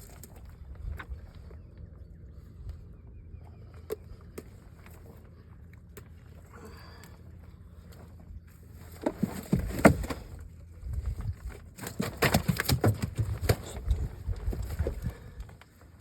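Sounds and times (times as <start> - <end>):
knocks and thumps on boat: 9.0 - 10.4, 11.8 - 15.0.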